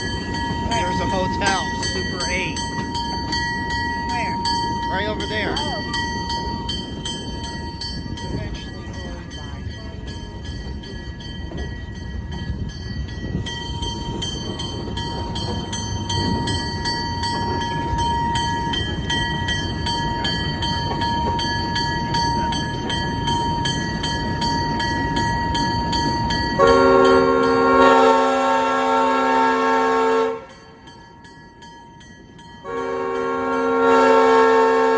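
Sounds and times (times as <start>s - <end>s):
locomotive bell ringing: 0.0s - 34.9s
train cars rumbling on rails: 0.0s - 34.9s
locomotive horn chord: 26.6s - 30.6s, 32.6s - 34.9s.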